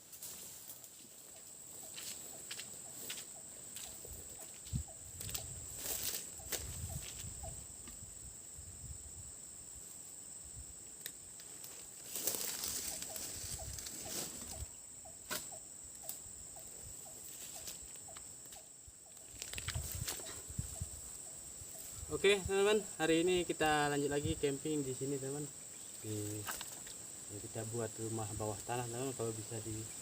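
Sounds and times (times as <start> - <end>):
rustling through leaves and brush: 0.0 - 7.3, 11.4 - 14.7, 19.1 - 20.8
high-pitched insect drone: 0.0 - 30.0.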